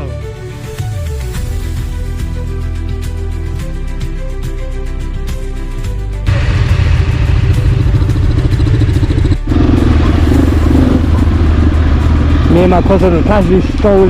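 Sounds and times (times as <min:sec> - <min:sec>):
background music with held notes: 0:00.0 - 0:14.0
motorcycle engine running: 0:06.2 - 0:14.0.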